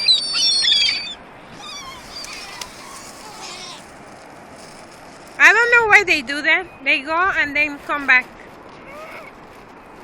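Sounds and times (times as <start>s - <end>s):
gulls crying: 0.0s - 4.0s.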